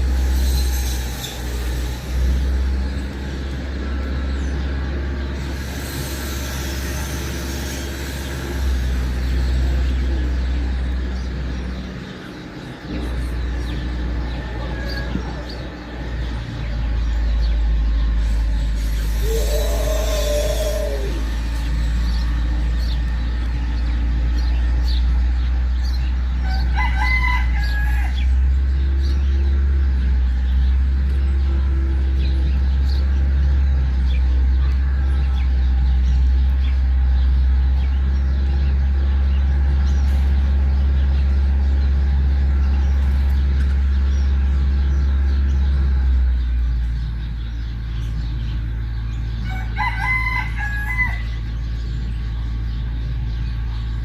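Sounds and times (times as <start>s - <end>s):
rooster crowing: 19.1s - 21.7s, 26.4s - 28.4s, 49.4s - 51.5s.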